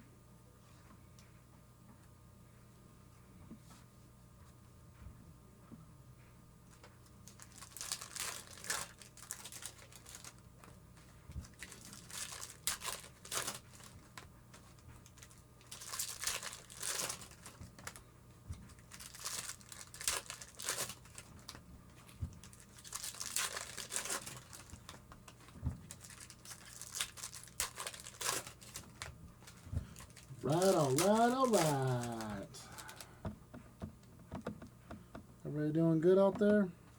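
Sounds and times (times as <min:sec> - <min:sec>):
foil wrappers tearing and crinkling: 0:07.2 - 0:10.8, 0:11.4 - 0:18.0, 0:18.7 - 0:33.1.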